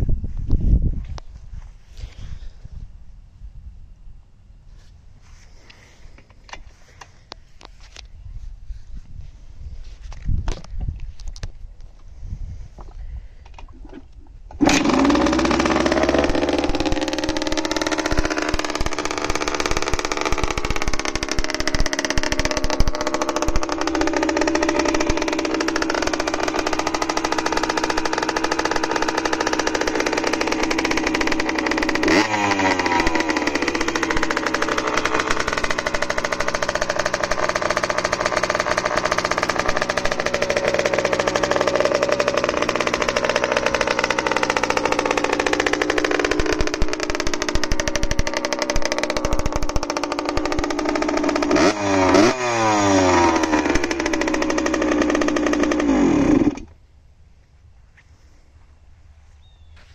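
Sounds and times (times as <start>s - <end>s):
two-stroke engine running: 14.5s - 56.8s.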